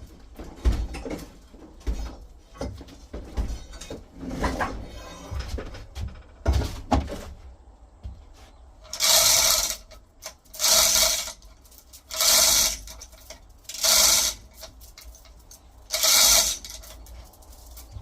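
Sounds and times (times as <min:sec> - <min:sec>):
chain rasping through hoist: 0:08.8 - 0:18.0.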